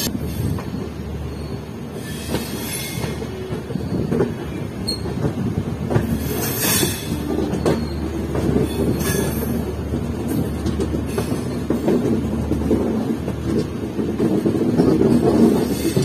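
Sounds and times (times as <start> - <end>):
train rumbling along track: 0.0 - 16.0
wheels clanking over rail joints: 0.0 - 16.0
wheel squeal: 6.4 - 9.5.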